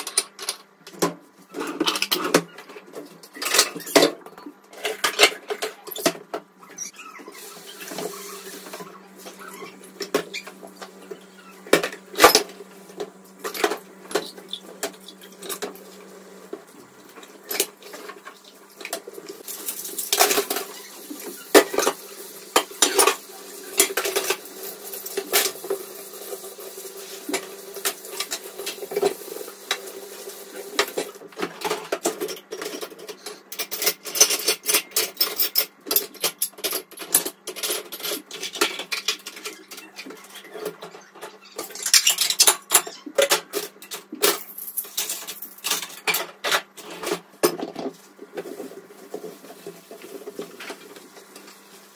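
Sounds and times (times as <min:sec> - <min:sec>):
dishes and cutlery clinking: 0:19.6 - 0:25.9.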